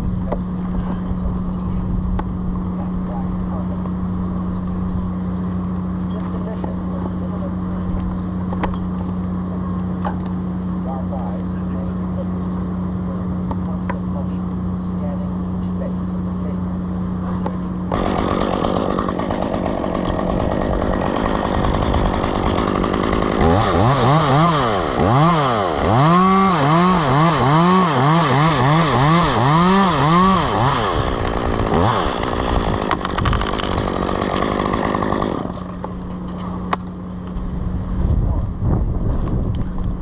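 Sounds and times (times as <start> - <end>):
chainsaw cutting wood: 17.9 - 37.0.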